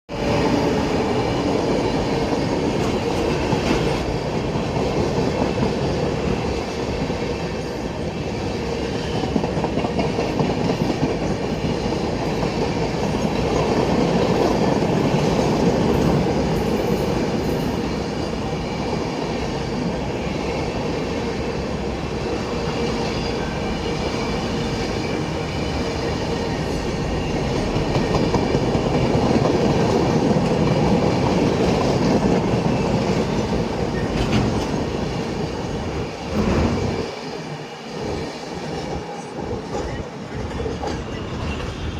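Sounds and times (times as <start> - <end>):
train wheels clattering over rail joints: 27.4 - 35.1.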